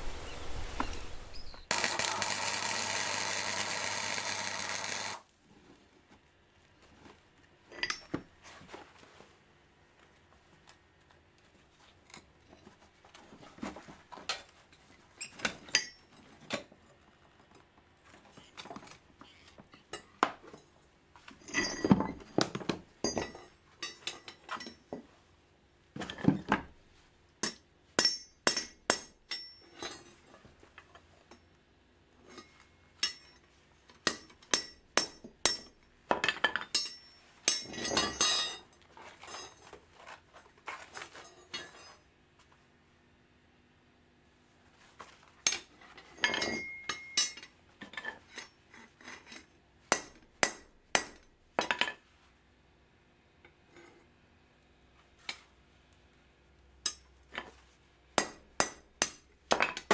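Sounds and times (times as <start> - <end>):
steel rebar clinking and knocking: 34.1 - 38.6, 46.2 - 47.5.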